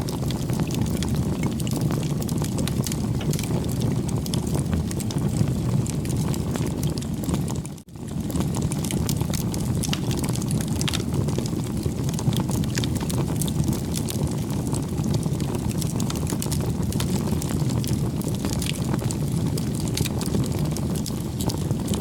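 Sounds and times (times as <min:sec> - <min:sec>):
bonfire flame rushing: 0:00.0 - 0:22.0
burning wood crackling: 0:00.0 - 0:22.0.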